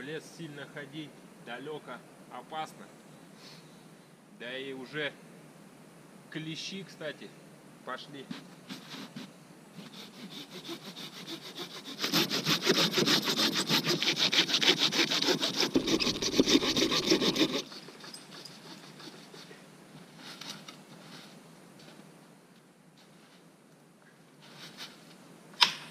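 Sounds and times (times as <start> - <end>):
rasping strokes: 8.3 - 21.4.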